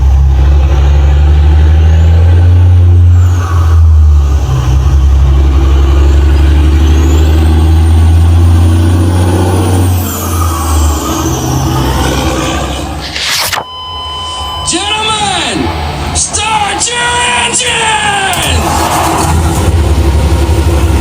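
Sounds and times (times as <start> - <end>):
faint high whine: 13.0 - 15.8.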